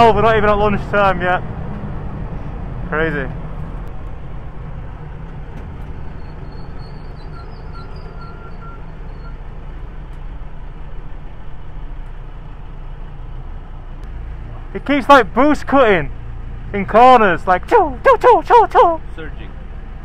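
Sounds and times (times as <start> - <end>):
car engine drone inside cabin: 0.0 - 20.0
road noise: 0.0 - 20.0.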